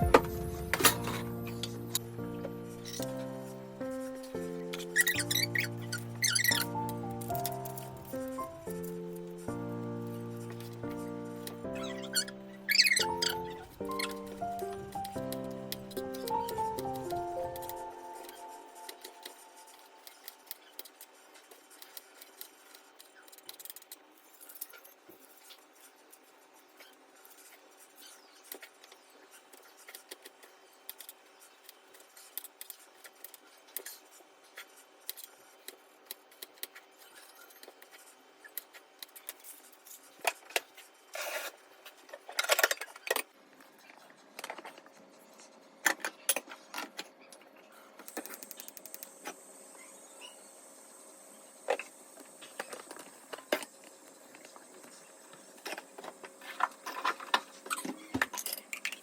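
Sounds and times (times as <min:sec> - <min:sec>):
utensils clattering and scraping: 0:00.0 - 0:02.0, 0:40.2 - 0:43.3.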